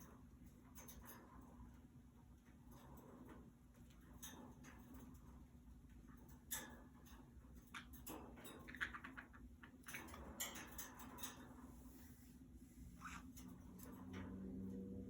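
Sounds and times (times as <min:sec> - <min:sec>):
budgies pecking and rustling: 0:00.0 - 0:15.0.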